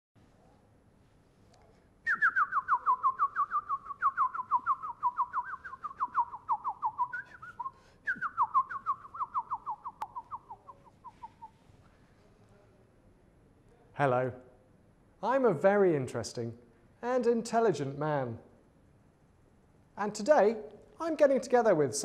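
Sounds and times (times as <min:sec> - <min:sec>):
songbird whistled trills: 0:02.1 - 0:11.6.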